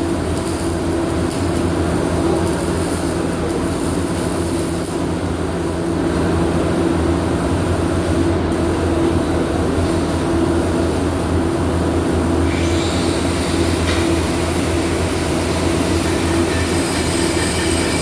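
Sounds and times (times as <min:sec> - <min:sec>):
low machine hum: 0:08.3 - 0:18.0.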